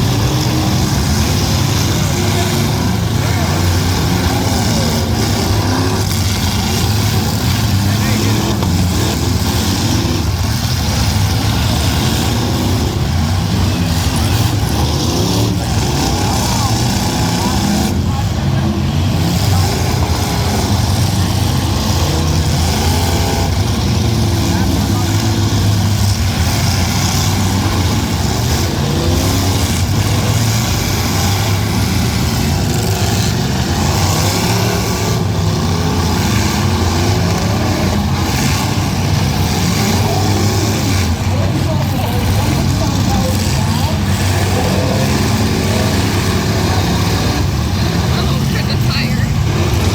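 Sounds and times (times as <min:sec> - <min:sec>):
car engines revving loudly: 0:00.0 - 0:49.9.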